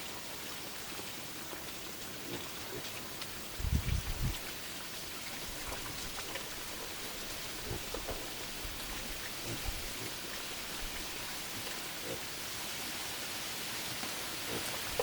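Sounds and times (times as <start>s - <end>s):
steady hiss: 3.1s - 15.0s
faint ticks and taps: 7.7s - 10.1s.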